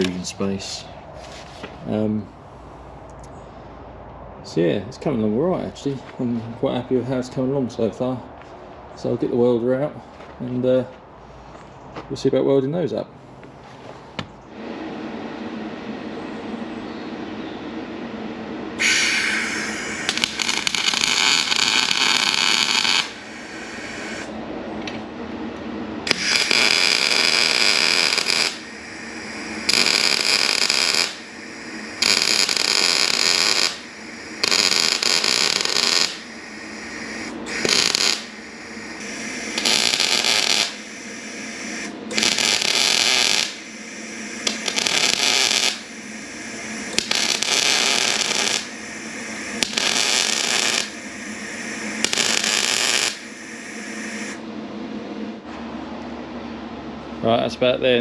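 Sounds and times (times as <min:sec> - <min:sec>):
electric welder crackling: 0:00.0 - 0:00.3, 0:18.8 - 0:25.0, 0:26.0 - 0:54.4.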